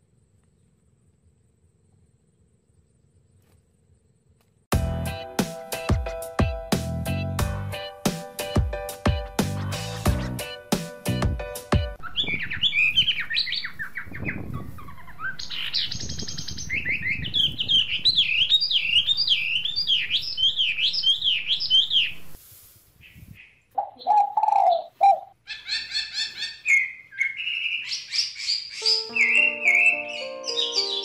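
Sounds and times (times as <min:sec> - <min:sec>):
small birds chirping: 0:08.4 - 0:22.4, 0:23.0 - 0:31.0.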